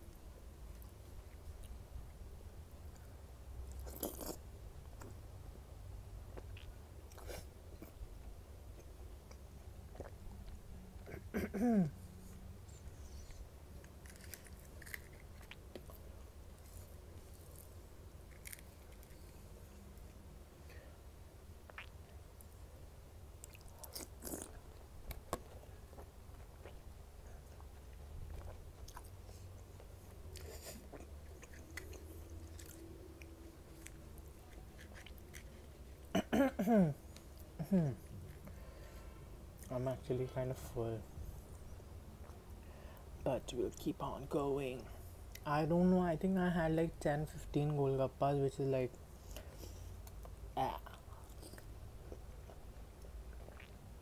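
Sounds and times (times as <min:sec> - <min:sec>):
person chewing crunchy food: 0:03.7 - 0:04.4, 0:12.9 - 0:20.2, 0:21.6 - 0:22.2, 0:23.4 - 0:36.1, 0:50.9 - 0:53.8
wet mouth clicks: 0:53.4 - 0:53.8.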